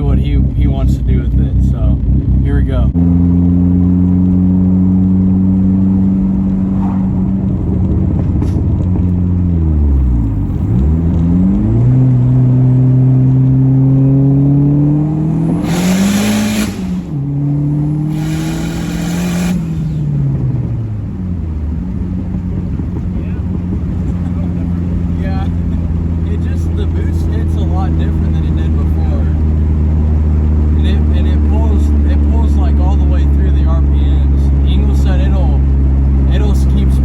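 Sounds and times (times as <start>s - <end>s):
car engine accelerating: 0.0s - 37.0s.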